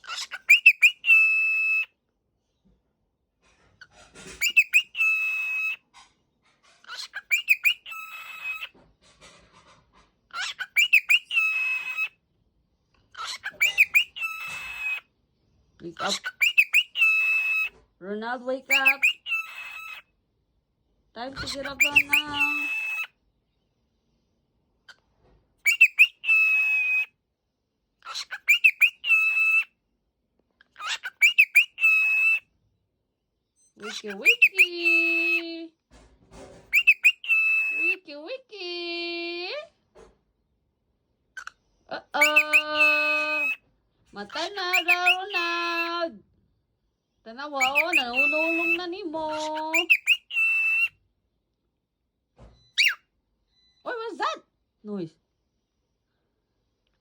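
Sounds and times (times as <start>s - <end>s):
cockatiel whistling: 0.0s - 1.9s, 4.3s - 5.8s, 6.9s - 8.7s, 10.4s - 12.1s, 13.2s - 15.0s, 16.0s - 17.8s, 18.7s - 20.0s, 21.4s - 23.1s, 25.6s - 27.1s, 28.1s - 29.7s, 30.8s - 32.4s, 33.8s - 35.4s, 36.7s - 38.0s, 42.2s - 43.6s, 44.4s - 45.9s, 47.6s - 48.8s, 49.4s - 51.0s, 52.6s - 53.0s.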